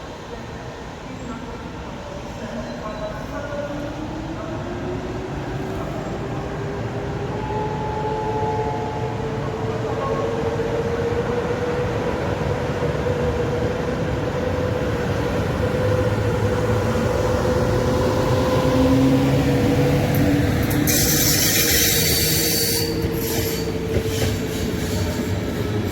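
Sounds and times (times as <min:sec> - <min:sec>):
train motor whine: 0:20.0 - 0:25.1.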